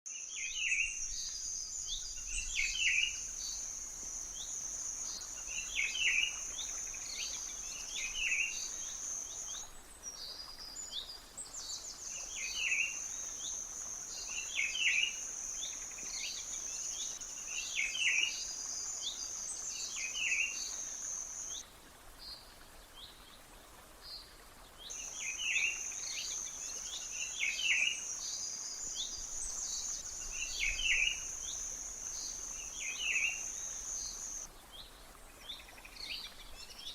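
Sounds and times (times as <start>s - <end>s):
bird chirping: 28.9s - 34.5s
insect buzzing: 29.6s - 34.4s.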